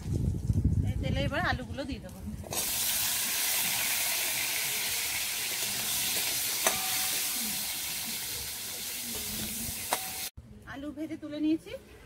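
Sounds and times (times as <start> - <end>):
potatoes sizzling in oil: 2.5 - 10.3
metal spatula clinking on pan: 6.6 - 7.3.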